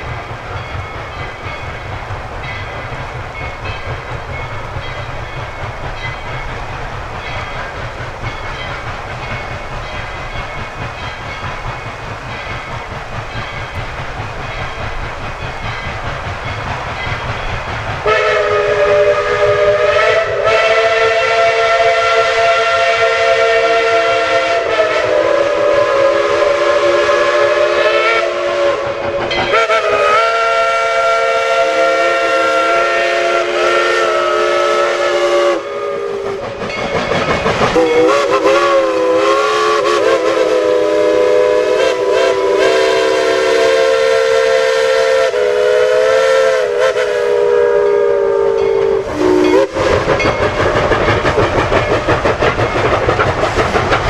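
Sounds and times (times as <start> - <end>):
steam train rumbling: 0.0 - 54.0
locomotive chime whistle: 14.4 - 37.0, 37.7 - 50.6.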